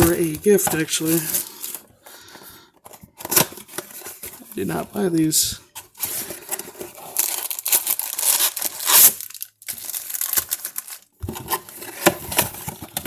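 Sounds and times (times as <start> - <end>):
foil wrapper tearing and crinkling: 6.0 - 13.0
loud foil rip: 7.6 - 9.5.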